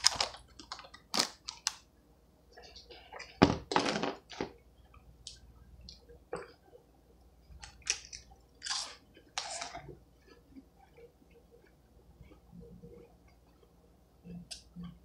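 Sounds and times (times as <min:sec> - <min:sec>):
potato chips crunching: 0:07.6 - 0:09.8.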